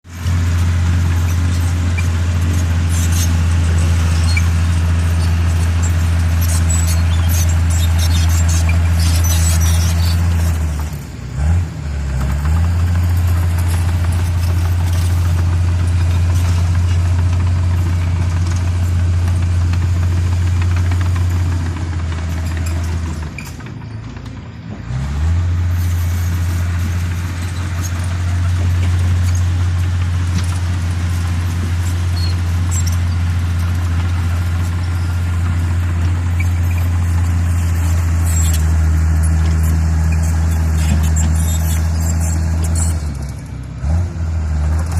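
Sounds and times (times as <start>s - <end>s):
bulldozer diesel engine running: 0.0s - 44.9s
machinery clatter: 12.2s - 24.9s, 25.7s - 43.7s.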